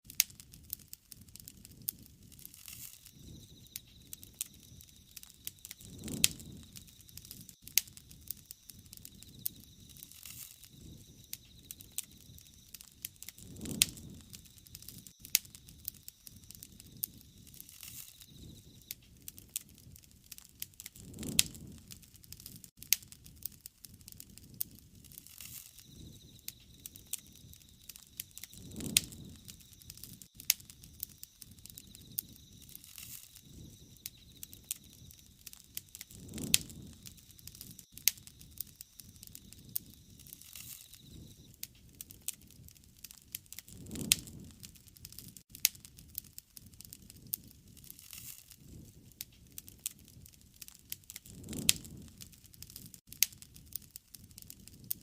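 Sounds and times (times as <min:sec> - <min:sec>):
wood fire crackling and popping: 0:00.0 - 0:55.0
flames rushing: 0:00.1 - 0:55.0.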